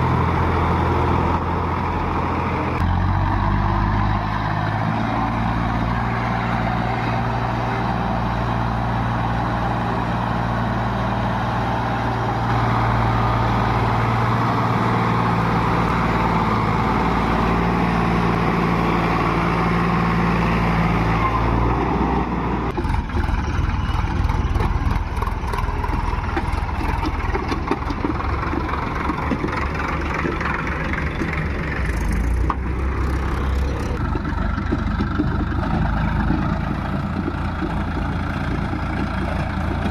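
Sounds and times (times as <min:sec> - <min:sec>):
heavy diesel engine running: 0:00.0 - 0:39.9
engine clattering: 0:22.2 - 0:39.9.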